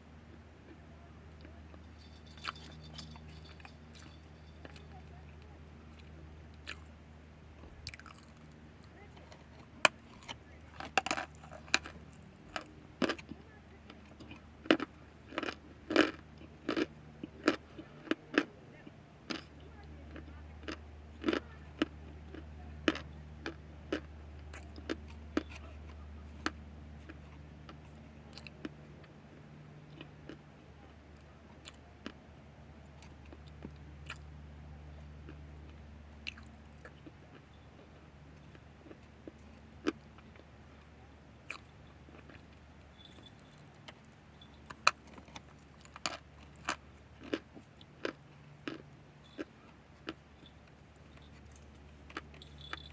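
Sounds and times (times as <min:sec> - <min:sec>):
steady low hum: 0:00.0 - 0:52.9
crisp chewing crunches: 0:00.7 - 0:07.0, 0:07.8 - 0:29.1, 0:32.9 - 0:34.4, 0:35.0 - 0:52.9.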